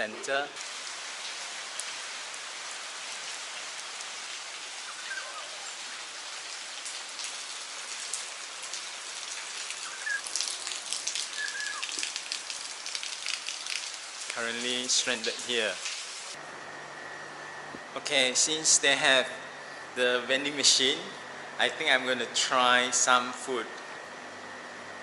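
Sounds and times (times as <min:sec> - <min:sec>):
rain falling steadily: 0:00.0 - 0:24.4.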